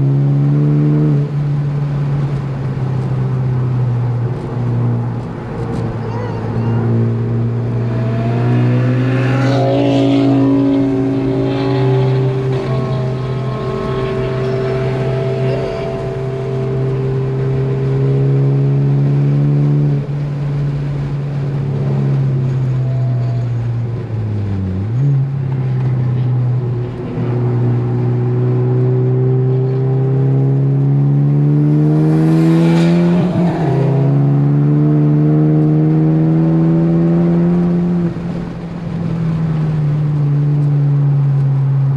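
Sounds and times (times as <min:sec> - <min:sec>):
car engine revving hard: 0:06.4 - 0:22.9, 0:26.8 - 0:39.0.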